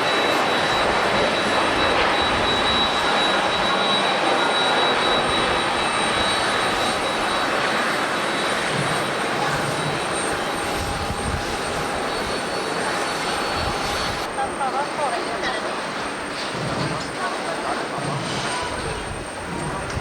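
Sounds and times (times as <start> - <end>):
jet engines at takeoff: 0.0 - 20.0.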